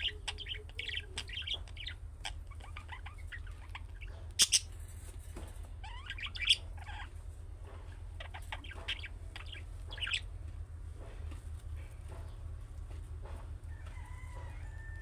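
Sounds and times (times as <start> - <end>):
budgerigars chirping and warbling: 0.0 - 5.0, 5.8 - 7.2, 8.0 - 10.3
steady low hum: 0.0 - 15.0.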